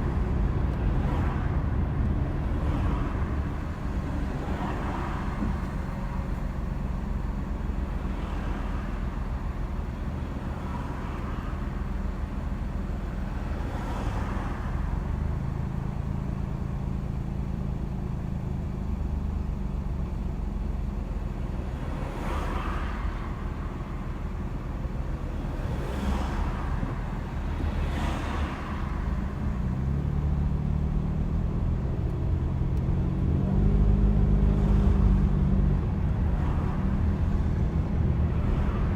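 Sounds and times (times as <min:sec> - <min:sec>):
car engine hum: 0:00.0 - 0:38.9
road noise: 0:00.0 - 0:38.9
vehicles whooshing past: 0:25.2 - 0:30.2, 0:33.4 - 0:38.9.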